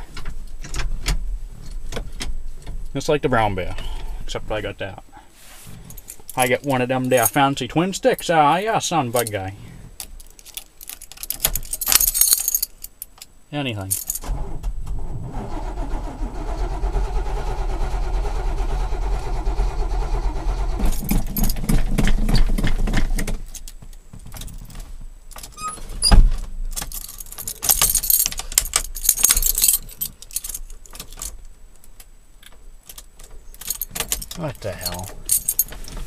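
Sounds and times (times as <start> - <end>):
keys jangling: 5.8 - 7.4, 10.0 - 13.3, 13.9 - 14.2, 20.8 - 21.6, 26.7 - 31.4, 32.8 - 36.0
engine cranking on starter: 14.2 - 22.1.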